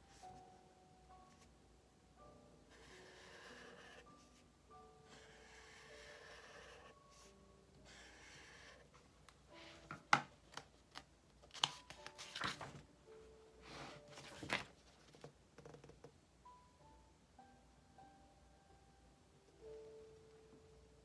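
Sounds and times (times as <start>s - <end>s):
soft background music: 0.0s - 21.0s
paper rustling: 9.6s - 12.9s, 13.6s - 15.3s.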